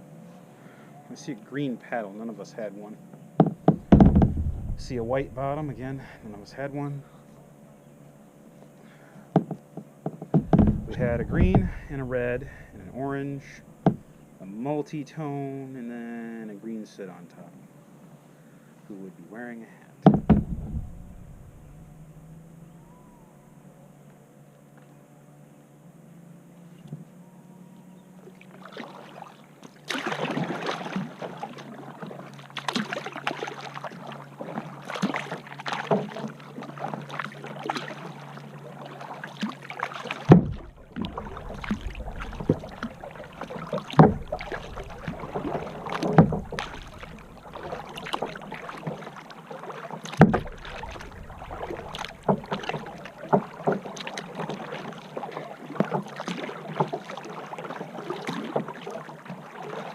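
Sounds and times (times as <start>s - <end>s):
paddle strokes splashing in water: 3.2s - 7.4s, 8.6s - 14.5s, 20.0s - 23.2s, 28.0s - 59.9s
thumps: 3.4s - 6.6s, 9.4s - 14.2s, 20.0s - 22.4s, 40.3s - 48.5s, 50.1s - 53.8s.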